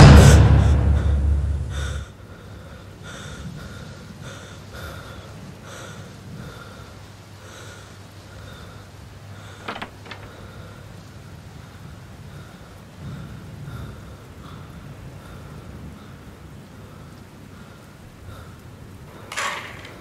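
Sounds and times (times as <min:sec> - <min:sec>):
thunder clap rumbling: 0:00.0 - 0:02.1
man breathing heavily: 0:00.3 - 0:19.4
door lever handle clicks: 0:09.6 - 0:10.3, 0:19.3 - 0:20.0.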